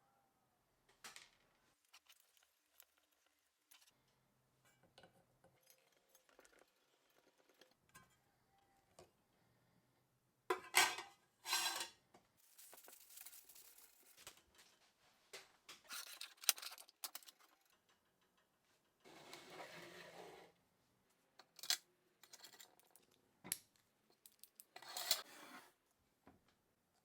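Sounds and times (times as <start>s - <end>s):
metal parts and tools clinking: 15.9s - 17.8s, 24.2s - 25.3s.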